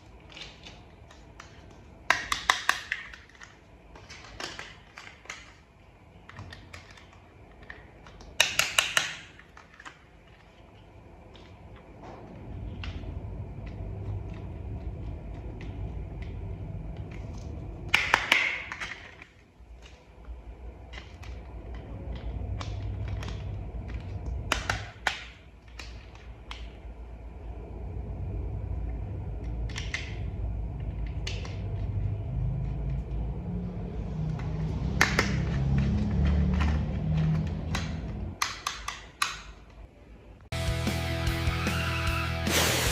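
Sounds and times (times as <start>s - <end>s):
plastic toy parts clicking: 0.2s - 11.5s, 34.6s - 39.8s
plastic parts snapping together: 0.3s - 5.7s, 6.3s - 10.6s, 20.9s - 26.8s, 36.5s - 39.8s
low handling rumble: 11.0s - 18.0s, 26.7s - 38.4s.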